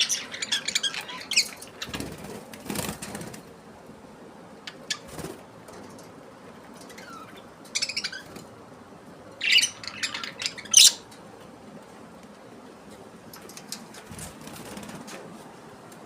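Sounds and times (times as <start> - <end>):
parrots squawking: 0.0 - 2.0, 6.9 - 8.3, 9.4 - 11.0.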